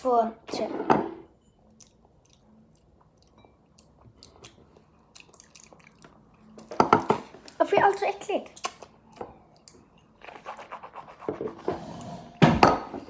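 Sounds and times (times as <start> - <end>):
mouth clicks and chewing: 1.6 - 6.7, 8.5 - 10.7.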